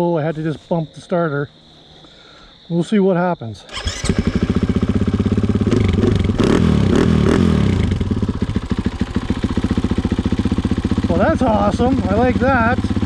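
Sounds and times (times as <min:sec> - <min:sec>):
motorcycle engine revving: 0:03.7 - 0:13.0.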